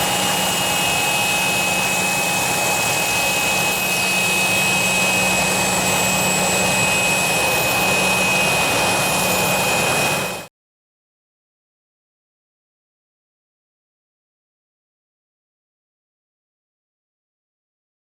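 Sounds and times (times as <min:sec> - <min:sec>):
jet engines whining and rushing: 0:00.0 - 0:10.5.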